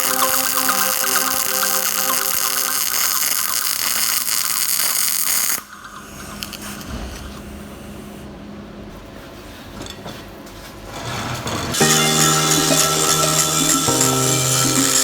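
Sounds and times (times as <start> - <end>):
welding arc crackling and hissing: 0.0 - 5.8, 11.8 - 15.0.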